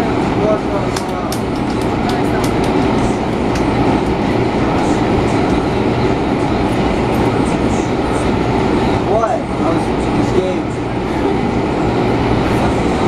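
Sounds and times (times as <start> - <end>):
train rumbling along track: 0.0 - 13.0
faint clickety-clack: 0.9 - 4.2.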